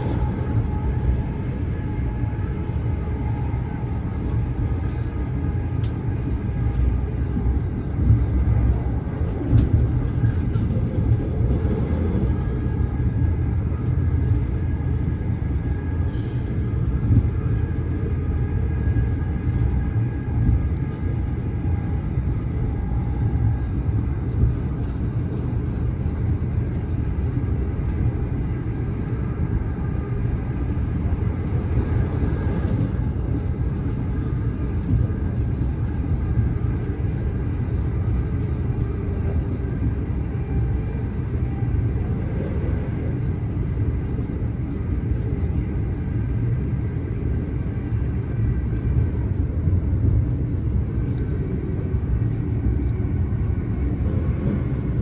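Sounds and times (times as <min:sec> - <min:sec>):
faint steady whine: 0:00.0 - 0:55.0
train wheels rumbling on rail: 0:00.0 - 0:55.0.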